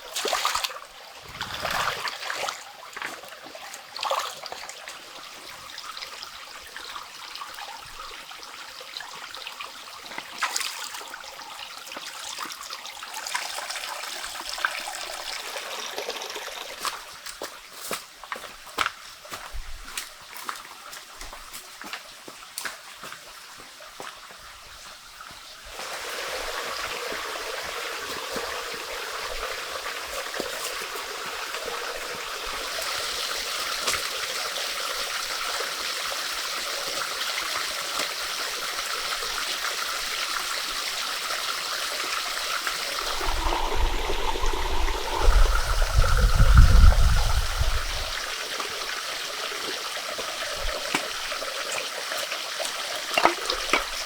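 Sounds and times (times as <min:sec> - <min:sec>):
water trickling: 0:42.8 - 0:51.3
low rumble: 0:43.0 - 0:48.3.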